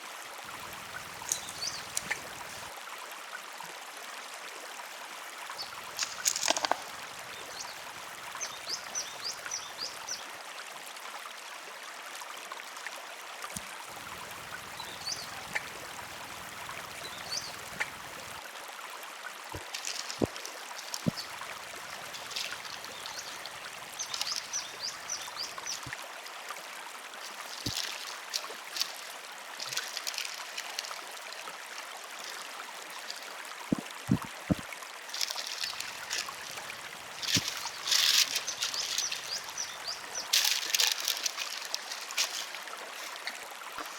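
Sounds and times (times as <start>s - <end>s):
river water flowing: 0.0s - 43.9s.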